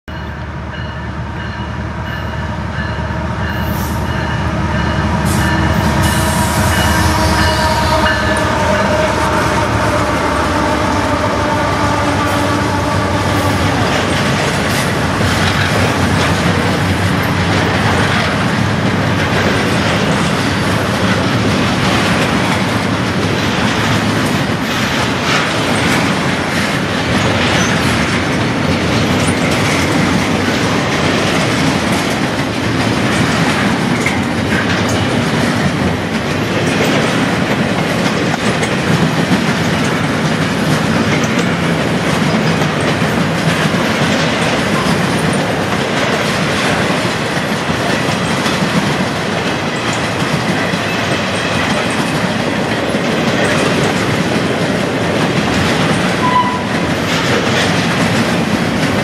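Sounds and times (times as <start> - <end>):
train wheels rumbling on rails: 0.0 - 59.0
locomotive horn tones: 1.8 - 15.1, 56.2 - 56.8.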